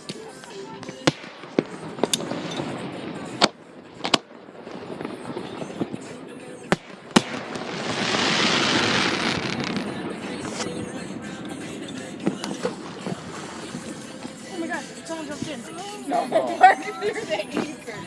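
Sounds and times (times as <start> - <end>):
firework bangs: 0.8 - 15.8
firework rushing hiss: 1.1 - 15.5.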